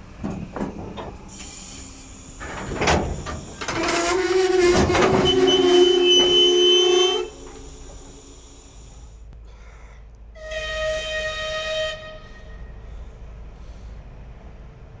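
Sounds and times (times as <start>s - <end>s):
train horn blasts: 3.8s - 7.5s, 10.4s - 12.9s.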